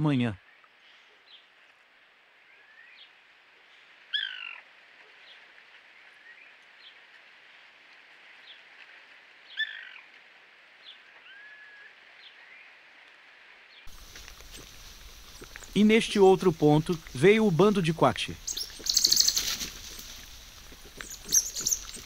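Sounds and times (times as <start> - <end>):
loud bird calls: 4.1 - 4.6, 18.3 - 22.0
birds chirping: 13.9 - 22.0.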